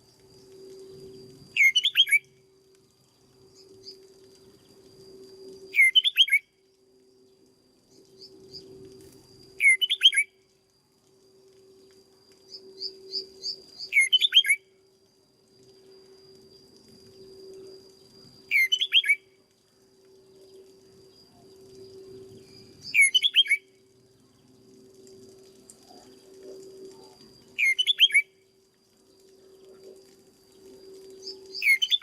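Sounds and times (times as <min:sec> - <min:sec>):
low hum: 0:00.0 - 0:05.8, 0:06.4 - 0:09.6, 0:14.6 - 0:18.5, 0:19.2 - 0:23.0, 0:23.6 - 0:27.6, 0:28.2 - 0:31.6
faint steady high tone: 0:00.0 - 0:32.0
bird chirps: 0:01.5 - 0:02.3, 0:05.7 - 0:06.4, 0:09.6 - 0:10.3, 0:12.5 - 0:14.6, 0:18.5 - 0:19.2, 0:22.3 - 0:23.7, 0:27.6 - 0:28.3, 0:31.2 - 0:32.0
bird singing sweeping phrases: 0:01.5 - 0:02.3, 0:05.7 - 0:06.5, 0:09.6 - 0:10.3, 0:12.5 - 0:14.7, 0:18.5 - 0:19.2, 0:22.5 - 0:23.8, 0:27.6 - 0:28.3, 0:31.2 - 0:32.0.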